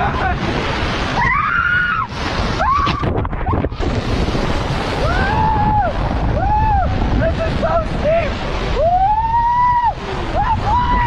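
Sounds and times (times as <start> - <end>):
rushing water on a water slide: 0.0 - 11.0
wind noise: 0.0 - 11.0
person whooping: 5.0 - 7.0, 8.8 - 11.0.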